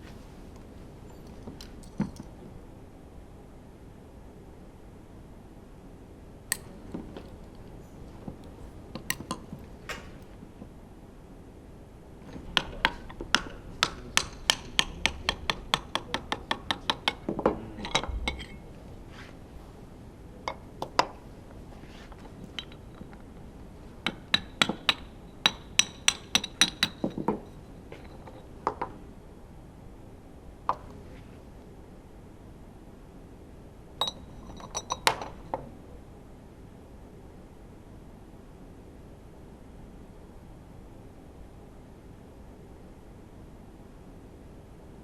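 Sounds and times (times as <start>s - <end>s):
metal tools clinking on engine parts: 22.2s - 23.1s.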